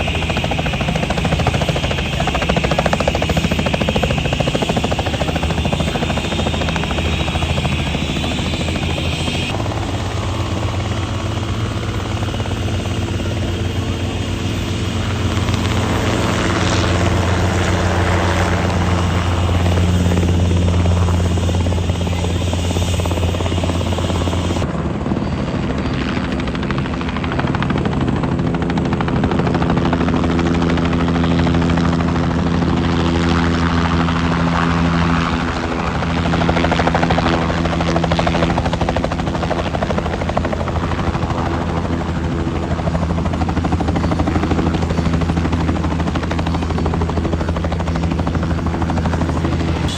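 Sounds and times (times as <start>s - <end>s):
helicopter flying: 0.0s - 49.9s.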